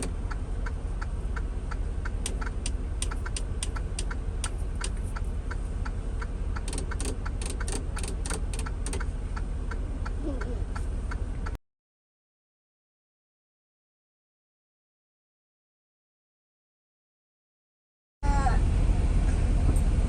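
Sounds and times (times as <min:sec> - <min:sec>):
sharp clicks and ticks: 0:00.0 - 0:11.6
truck cab drone: 0:00.0 - 0:11.6, 0:18.2 - 0:20.0.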